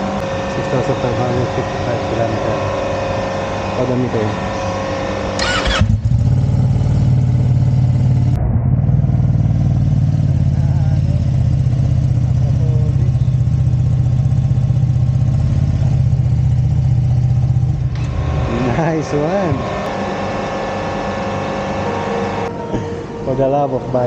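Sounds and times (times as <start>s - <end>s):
motorcycle engine idling: 0.0s - 8.3s, 9.0s - 19.5s.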